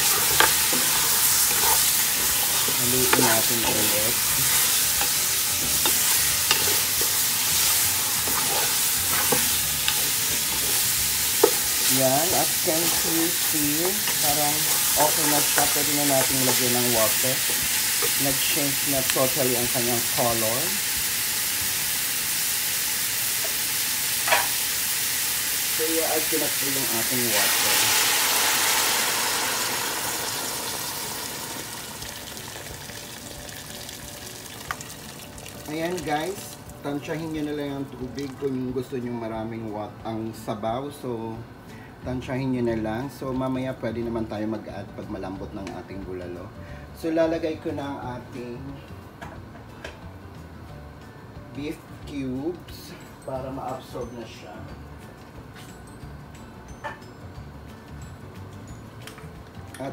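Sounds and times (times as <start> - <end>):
utensil knocking and scraping pot: 0.0 - 12.0
meat sizzling in oil: 0.0 - 38.3.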